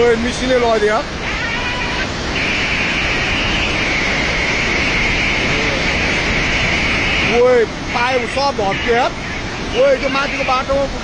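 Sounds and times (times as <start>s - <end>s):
torrent rushing: 0.0s - 11.0s.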